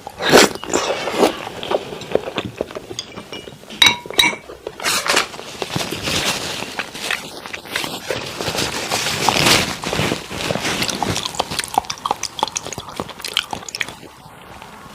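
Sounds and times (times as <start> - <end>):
utensils clinking against a dish: 0.1 - 5.4.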